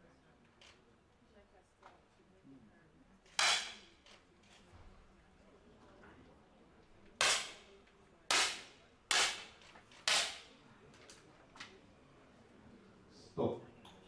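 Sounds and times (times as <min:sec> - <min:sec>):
air pistol shots: 0:03.4 - 0:03.9, 0:07.2 - 0:07.7, 0:08.3 - 0:10.5.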